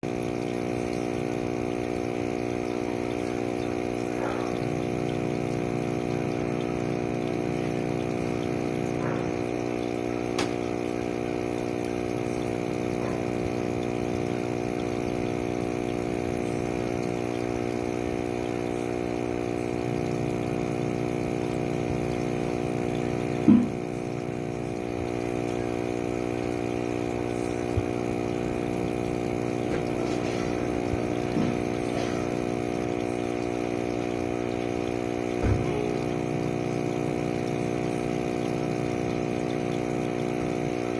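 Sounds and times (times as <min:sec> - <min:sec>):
small motor humming: 0:00.0 - 0:40.9
sharp knock: 0:23.5 - 0:23.8.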